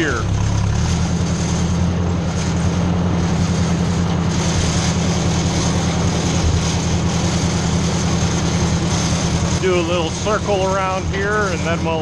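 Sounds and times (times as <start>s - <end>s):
tractor engine droning: 0.0s - 12.0s.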